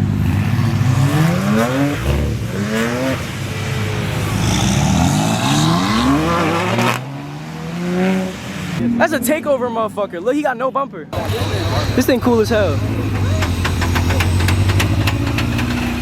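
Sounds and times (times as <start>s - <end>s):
car engine accelerating: 0.0s - 9.6s, 11.2s - 16.0s.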